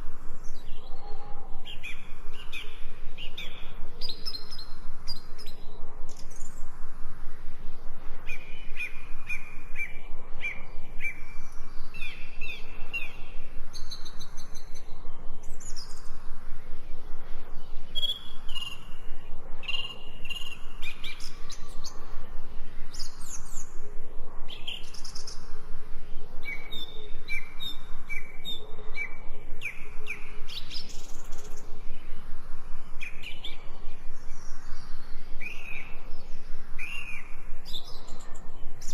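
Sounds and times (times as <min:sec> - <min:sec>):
songbirds chirping: 0:00.0 - 0:38.9
steady background hiss: 0:00.0 - 0:38.9.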